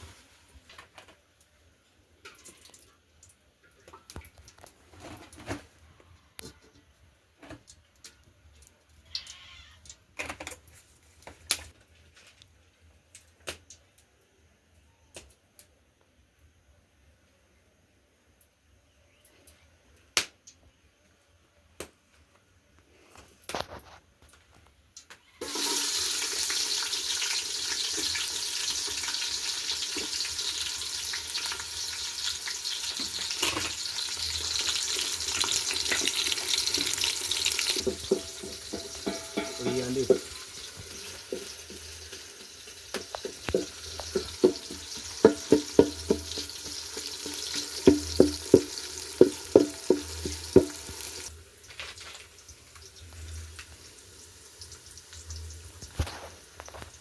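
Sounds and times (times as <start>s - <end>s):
food sizzling in oil: 25.4s - 57.0s
sharp knocks and clinks: 37.8s - 40.5s.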